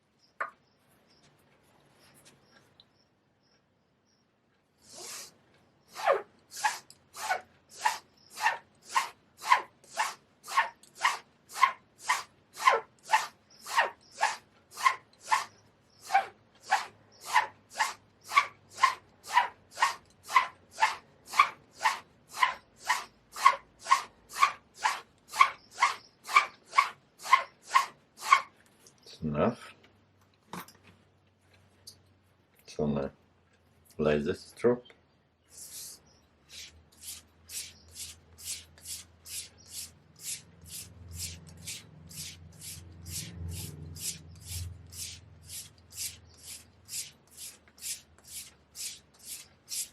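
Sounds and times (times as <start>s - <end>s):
razor scraping on whetstone: 4.9s - 28.5s, 35.6s - 49.9s.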